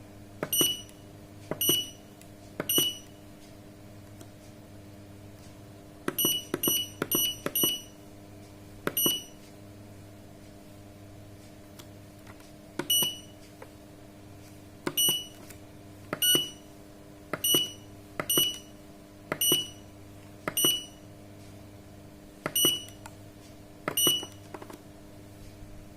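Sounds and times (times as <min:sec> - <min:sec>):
steady low hum: 0:00.0 - 0:25.9
short high beeps: 0:00.5 - 0:01.0, 0:01.6 - 0:02.0, 0:06.2 - 0:08.0, 0:09.0 - 0:09.4, 0:12.9 - 0:13.4, 0:15.0 - 0:15.4, 0:16.2 - 0:16.6, 0:17.4 - 0:18.7, 0:20.6 - 0:21.0, 0:24.0 - 0:24.4.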